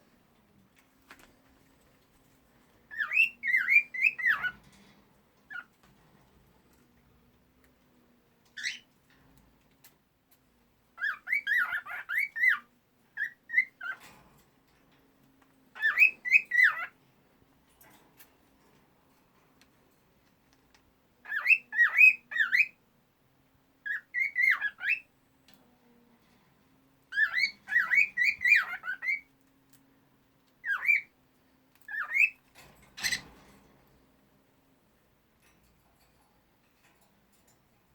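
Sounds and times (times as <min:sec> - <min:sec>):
cockatiel whistling: 0:02.9 - 0:04.5.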